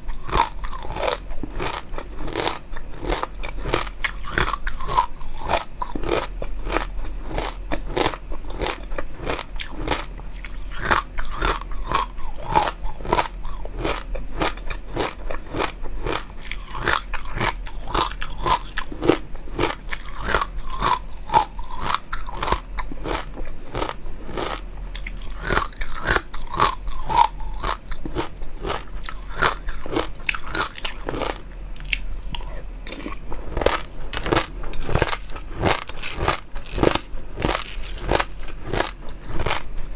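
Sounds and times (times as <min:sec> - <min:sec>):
chewing and biting: 0:00.0 - 0:39.7.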